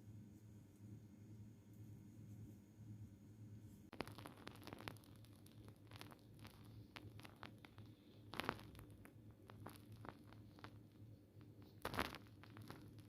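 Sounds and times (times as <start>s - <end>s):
faint handling clicks and crackling: 3.9s - 13.0s
loud crackles: 3.9s - 13.0s.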